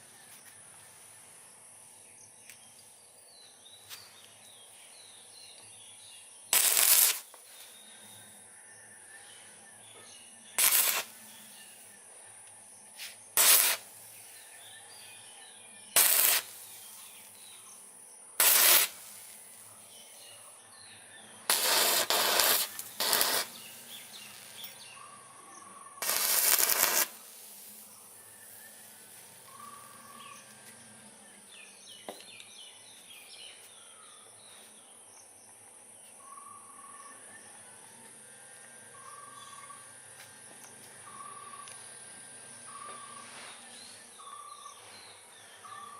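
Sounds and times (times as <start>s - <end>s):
insects chirping: 0.0s - 45.9s
arc welding crackling: 6.5s - 7.7s, 10.6s - 12.0s, 13.3s - 14.6s, 15.9s - 17.5s, 18.4s - 19.7s, 21.5s - 25.0s, 25.9s - 30.8s
birds chirping: 7.5s - 37.9s.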